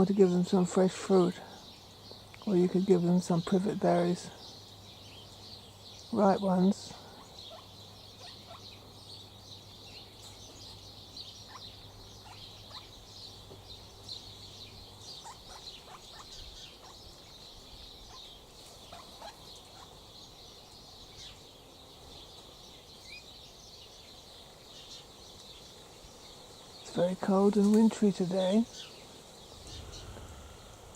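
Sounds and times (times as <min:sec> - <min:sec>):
low steady hum: 0:26.9 - 0:30.9.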